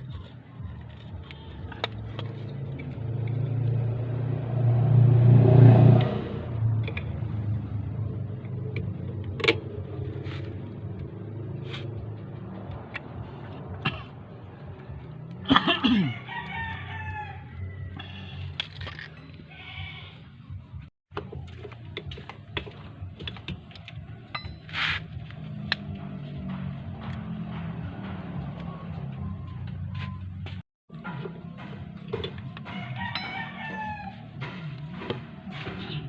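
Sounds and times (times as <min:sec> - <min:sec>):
vehicle engine passing by: 0:00.0 - 0:15.5, 0:23.9 - 0:36.0.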